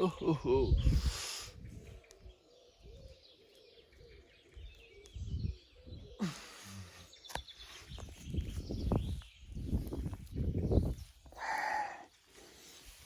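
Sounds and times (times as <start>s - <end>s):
faint bird chirps: 0.0s - 12.6s.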